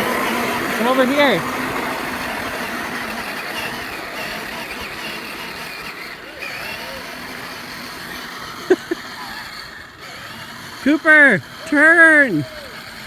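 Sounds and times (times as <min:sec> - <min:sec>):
toy car motor and wheels: 0:00.0 - 0:13.0
faint voices: 0:05.3 - 0:13.0.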